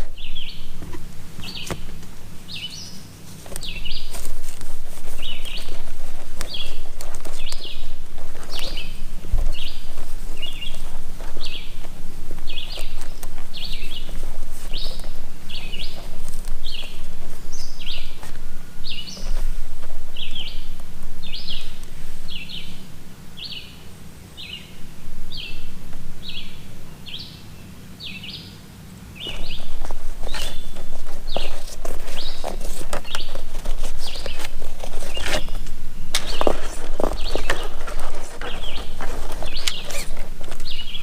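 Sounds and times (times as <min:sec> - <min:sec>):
knocking handling noise: 0:00.0 - 0:02.4
bird chirping: 0:00.0 - 0:41.0
steady low hum: 0:00.0 - 0:41.0.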